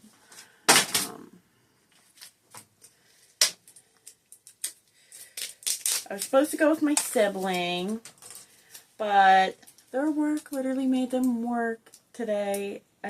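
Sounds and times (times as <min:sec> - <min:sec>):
packaging rustling: 0:01.9 - 0:09.0.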